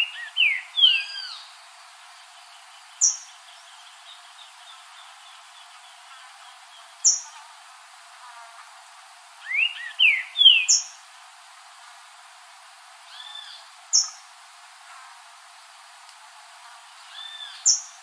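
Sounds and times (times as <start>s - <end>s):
bird whistling song: 0.0s - 1.5s, 9.4s - 10.9s.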